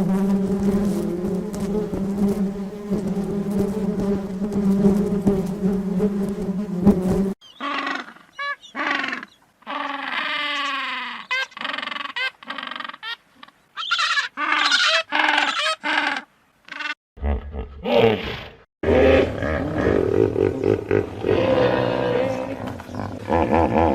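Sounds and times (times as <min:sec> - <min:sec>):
farm animal calls: 0:07.4 - 0:18.1.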